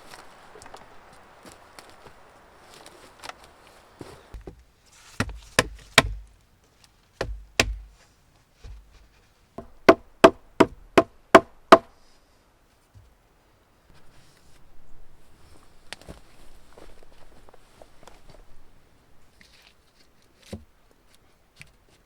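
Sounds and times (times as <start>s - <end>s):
hand tool knocking on timber: 4.4s - 4.6s, 5.2s - 6.3s, 7.2s - 7.9s, 9.6s - 11.9s.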